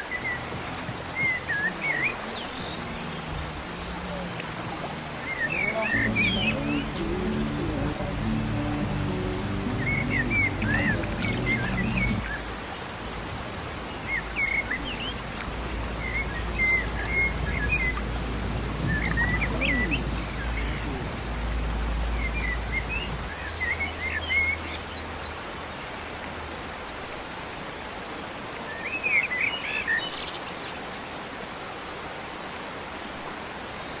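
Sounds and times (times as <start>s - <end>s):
birds chirping: 0.0s - 25.4s
steady outdoor hiss: 0.0s - 34.0s
low rumble: 6.0s - 12.6s, 14.2s - 24.1s.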